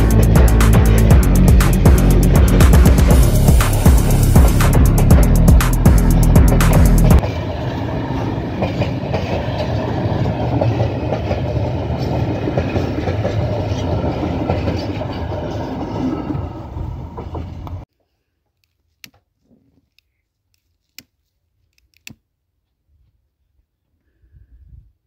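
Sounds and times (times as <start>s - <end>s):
loud music: 0.0s - 7.2s
train wheels rumbling on rails: 0.0s - 17.8s.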